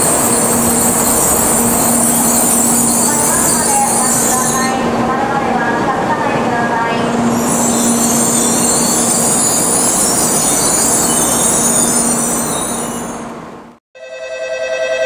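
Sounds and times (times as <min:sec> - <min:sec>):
high wheel squeal: 0:00.0 - 0:04.8, 0:07.2 - 0:13.3
train rushing past: 0:00.0 - 0:13.8
ringing chime tone: 0:14.0 - 0:15.0.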